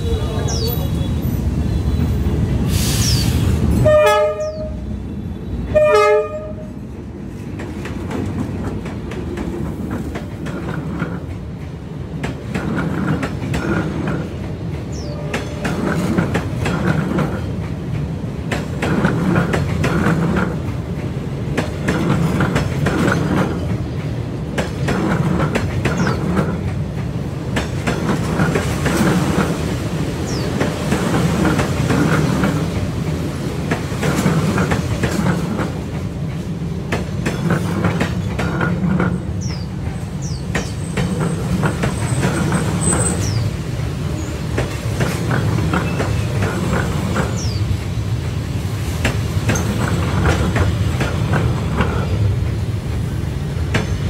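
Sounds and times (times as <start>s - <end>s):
train rumbling past: 0.0s - 54.0s
train horn blasts: 3.8s - 4.9s, 5.6s - 6.8s.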